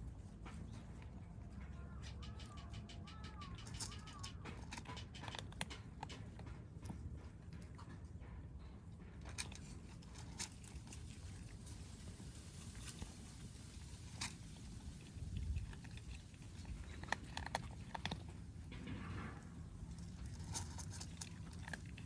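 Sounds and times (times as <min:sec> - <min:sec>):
kittens crunching food: 0:00.2 - 0:22.0.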